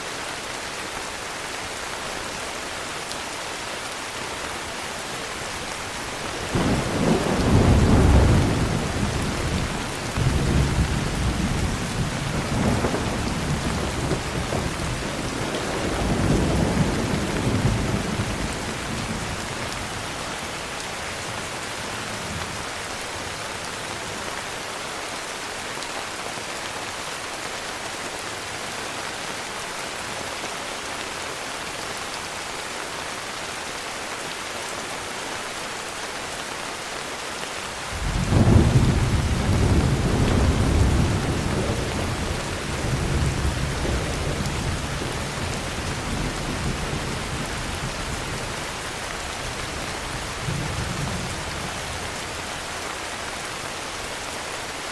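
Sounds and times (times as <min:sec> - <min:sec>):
heavy rain falling: 0:00.0 - 0:54.9
thunder rumbling: 0:06.4 - 0:19.8, 0:38.0 - 0:52.2.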